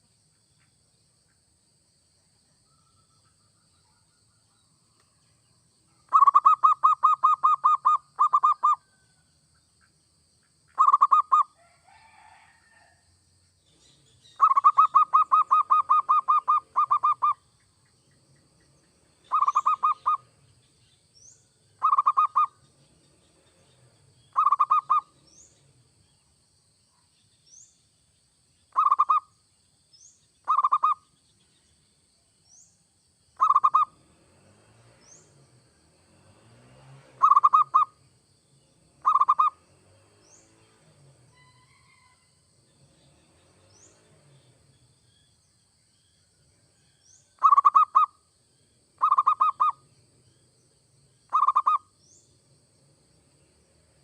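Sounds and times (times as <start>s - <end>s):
dove cooing: 6.1s - 8.8s, 10.8s - 11.4s, 14.4s - 17.4s, 19.3s - 20.3s, 21.8s - 22.5s, 24.4s - 25.1s, 30.5s - 31.0s, 33.4s - 33.9s, 37.2s - 37.9s, 39.0s - 39.6s, 47.4s - 48.1s, 49.0s - 49.8s, 51.3s - 51.8s.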